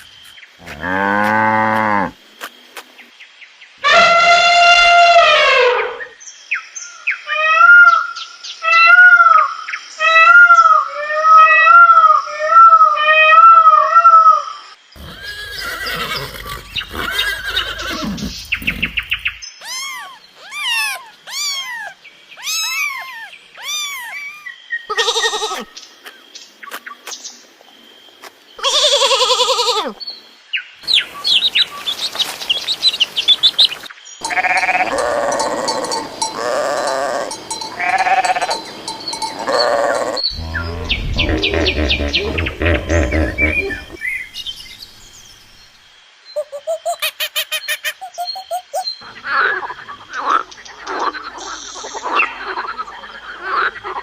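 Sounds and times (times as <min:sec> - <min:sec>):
repeated arching animal calls: 0:08.7 - 0:25.7, 0:33.4 - 0:44.3
falling whistled calls: 0:15.0 - 0:25.8, 0:30.8 - 0:44.8.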